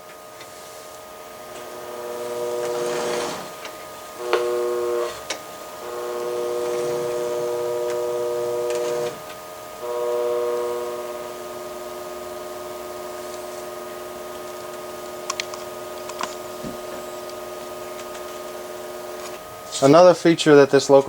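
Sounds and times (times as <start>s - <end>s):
electronic locomotive horn chord: 1.1s - 20.0s
quiet steady tone: 3.7s - 19.7s.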